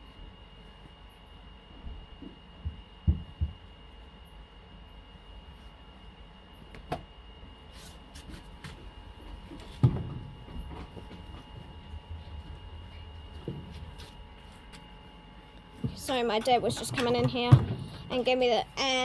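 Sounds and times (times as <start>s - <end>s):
faint steady hum: 0.0s - 19.0s
laundry thumping in washing machine: 8.3s - 14.7s, 15.8s - 18.2s.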